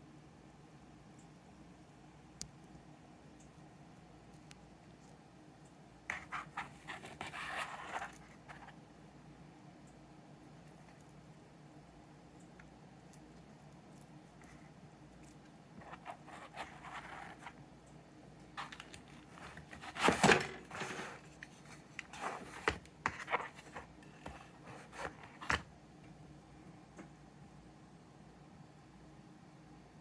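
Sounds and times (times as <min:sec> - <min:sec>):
packaging rustling and scraping: 0:15.8 - 0:17.6, 0:18.6 - 0:25.7.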